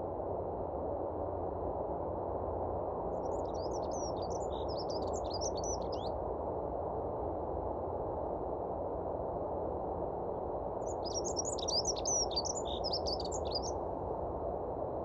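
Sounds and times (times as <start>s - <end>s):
low rushing background noise: 0.0s - 15.0s
bird chirping rapidly: 3.2s - 6.1s, 10.8s - 13.8s.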